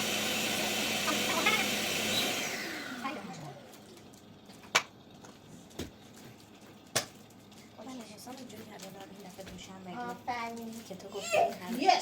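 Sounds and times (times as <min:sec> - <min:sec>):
vacuum cleaner running: 0:00.0 - 0:03.9.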